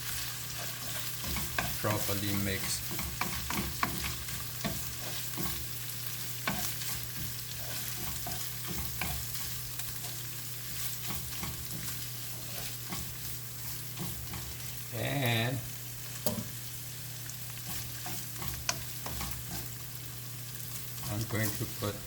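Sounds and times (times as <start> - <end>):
spatula scraping pan: 0.0 - 14.9, 17.5 - 19.9, 20.5 - 22.0
curry paste sizzling in pan: 0.0 - 22.0.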